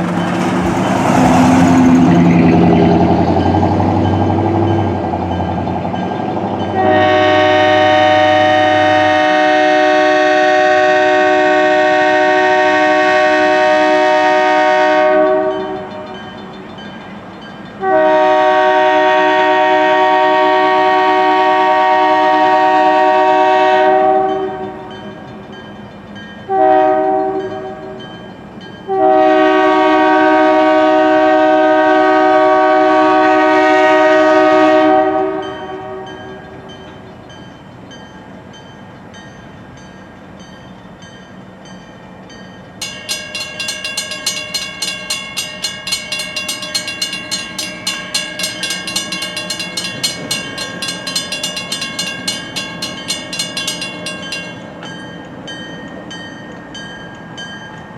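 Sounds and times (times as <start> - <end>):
fast rhythmic train clatter: 0.0 - 26.5, 36.3 - 57.9
locomotive air horn: 6.7 - 16.1, 17.8 - 24.8, 26.5 - 27.9, 28.9 - 36.2.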